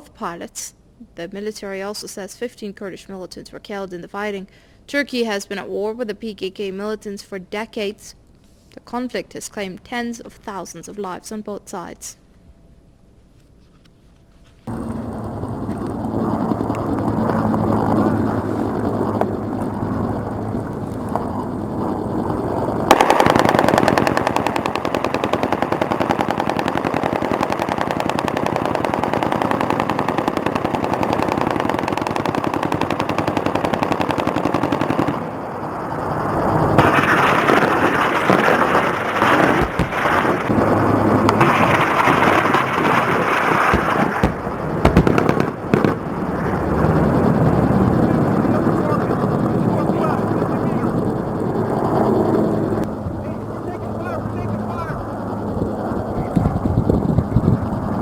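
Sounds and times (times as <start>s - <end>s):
machine-gun fire: 22.8s - 35.4s, 36.8s - 46.1s.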